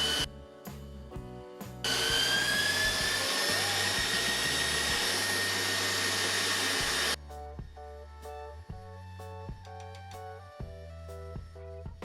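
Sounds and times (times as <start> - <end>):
electric mixer motor whining: 0.0 - 0.3, 1.8 - 7.2.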